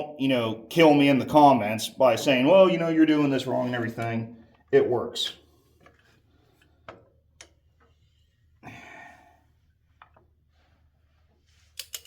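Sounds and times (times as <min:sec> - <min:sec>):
hand tools clicking: 0:11.8 - 0:12.0.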